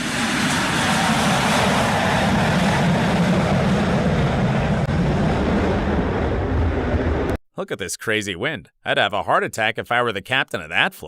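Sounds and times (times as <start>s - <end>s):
aircraft engines running: 0.0s - 7.4s
low rumble: 0.3s - 7.4s.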